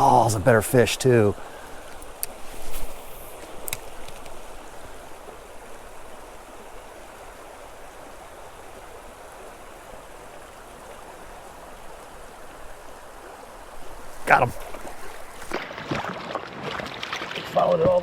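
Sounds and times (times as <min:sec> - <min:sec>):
creek water running: 0:00.0 - 0:18.0
sharp clicks: 0:03.3 - 0:04.4.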